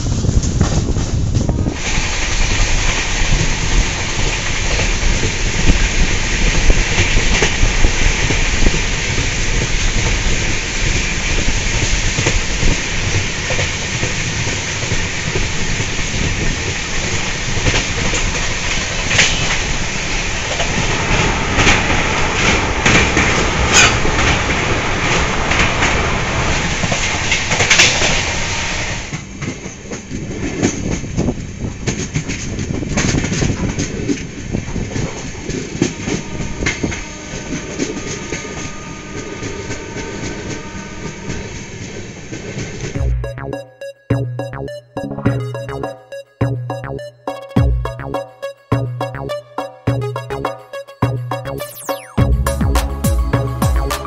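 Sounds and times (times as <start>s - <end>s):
train rumble and rush: 0.0s - 43.0s.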